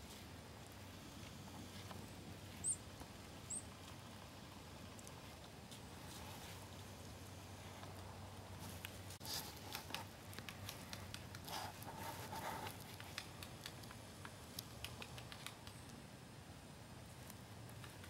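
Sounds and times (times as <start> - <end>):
light clicks and taps: 8.7 - 16.0.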